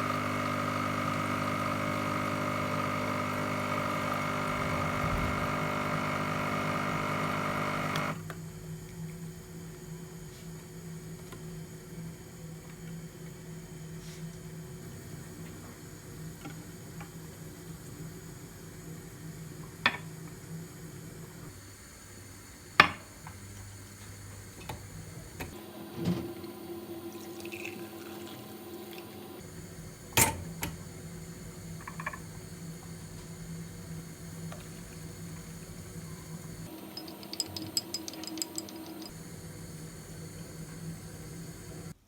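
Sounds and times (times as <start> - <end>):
objects knocking and clinking: 36.7 - 39.2.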